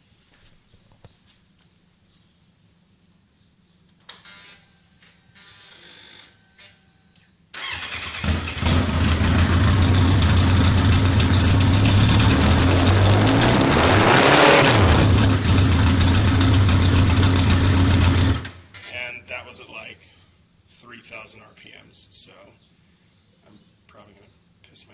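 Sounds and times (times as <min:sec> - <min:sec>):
motorcycle engine running loud: 0:08.2 - 0:18.5.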